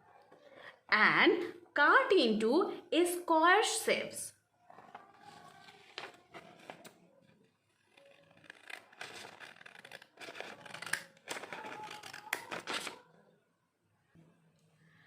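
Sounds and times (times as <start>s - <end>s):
paper rustling: 4.7s - 13.0s
scissors snipping paper: 7.8s - 13.0s.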